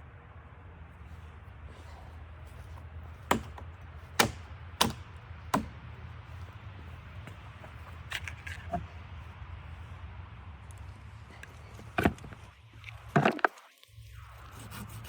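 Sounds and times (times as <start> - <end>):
sharp knocks: 3.3 - 5.8.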